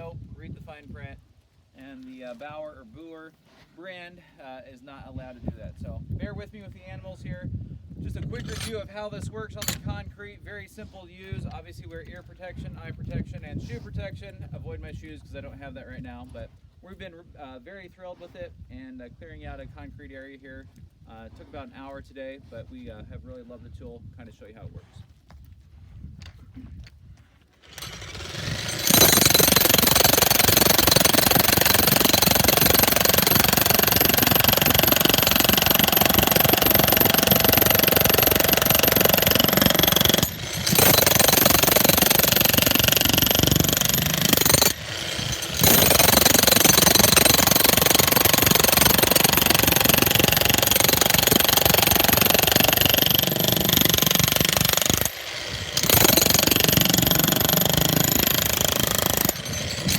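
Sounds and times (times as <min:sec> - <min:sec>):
jackhammer on concrete: 0:08.1 - 0:10.1, 0:27.6 - 0:59.9.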